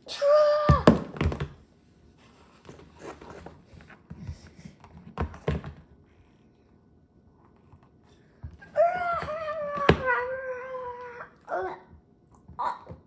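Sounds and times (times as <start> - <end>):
plastic figures knocking together: 0.7 - 1.6.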